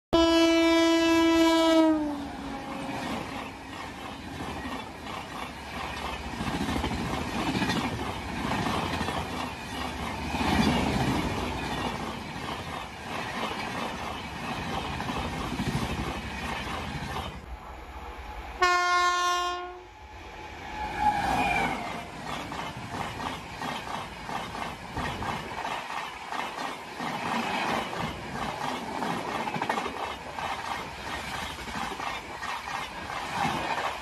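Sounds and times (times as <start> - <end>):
locomotive horn blast: 0.2 - 2.3, 18.6 - 20.0
train wheels clattering over joints: 2.7 - 17.4, 22.1 - 34.0
falling horn-like tone: 17.5 - 22.1.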